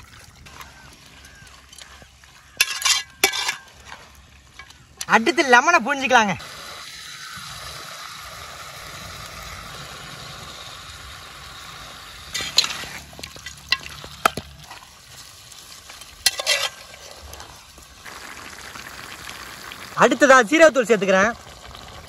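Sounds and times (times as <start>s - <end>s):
chicken sizzling in hot oil: 6.4s - 22.0s.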